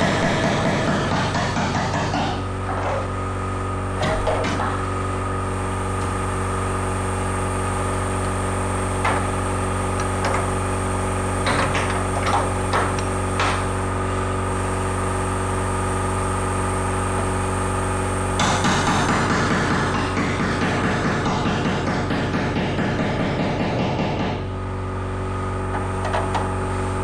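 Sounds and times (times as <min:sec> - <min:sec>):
sharp metal knocks: 0:00.0 - 0:03.0, 0:04.0 - 0:04.9, 0:09.0 - 0:13.8, 0:18.4 - 0:24.5
motor running steadily: 0:00.0 - 0:27.0.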